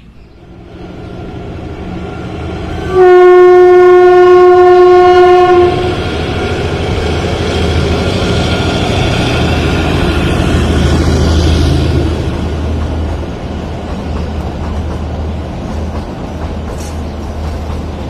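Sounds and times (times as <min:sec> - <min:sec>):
train rumble: 0:00.0 - 0:18.0
train horn blast: 0:02.6 - 0:06.0.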